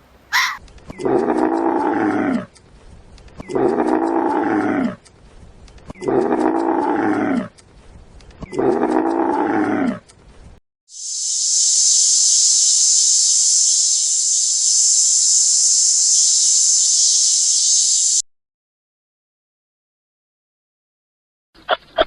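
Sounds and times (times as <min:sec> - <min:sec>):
cow mooing: 0:00.4 - 0:02.5, 0:03.5 - 0:05.0, 0:06.0 - 0:07.5, 0:08.5 - 0:10.0
steady high hiss: 0:10.9 - 0:18.2.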